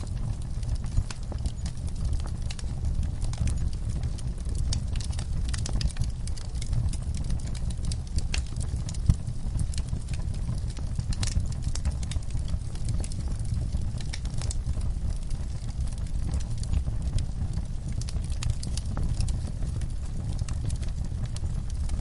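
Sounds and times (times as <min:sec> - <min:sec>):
fire crackles and pops: 0:00.0 - 0:22.0
fire rumbling: 0:00.0 - 0:22.0.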